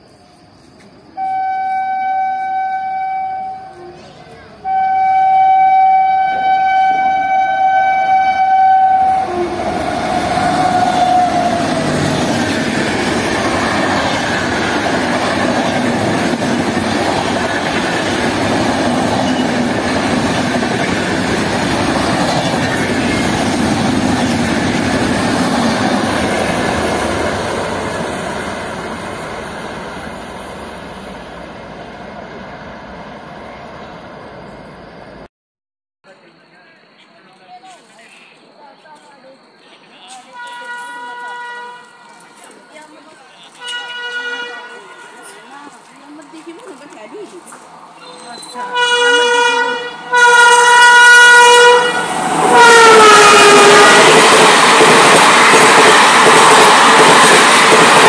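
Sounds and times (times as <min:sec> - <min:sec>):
train horn: 0:01.2 - 0:04.0, 0:04.6 - 0:12.3, 0:40.3 - 0:42.6, 0:43.5 - 0:45.6, 0:48.0 - 0:54.3
train coaches clattering over rails: 0:09.0 - 0:30.8, 0:38.9 - 0:58.0.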